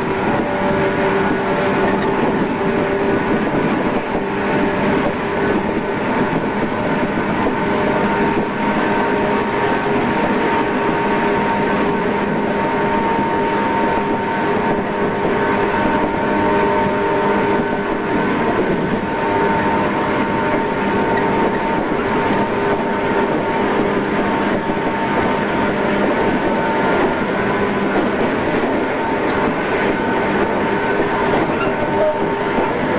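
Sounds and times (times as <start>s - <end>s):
electric train motor hum: 0.0s - 32.9s
wheels rumbling on track: 0.0s - 32.9s.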